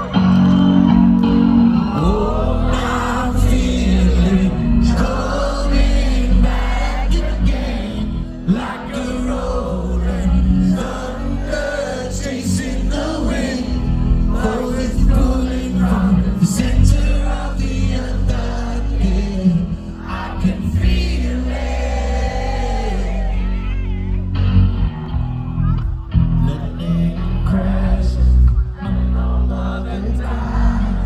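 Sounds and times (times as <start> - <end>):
strong steady bass: 0.0 - 11.6, 20.4 - 31.0
live rock band with singing: 0.0 - 31.0.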